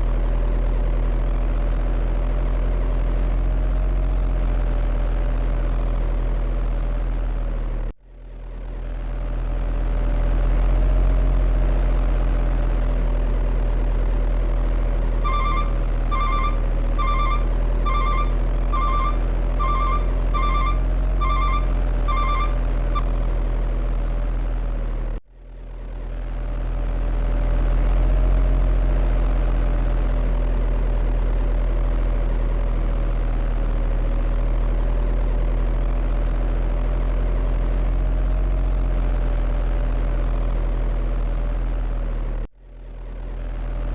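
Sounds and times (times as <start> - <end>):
low engine drone: 0.0 - 43.9
short double beeps: 15.3 - 23.1.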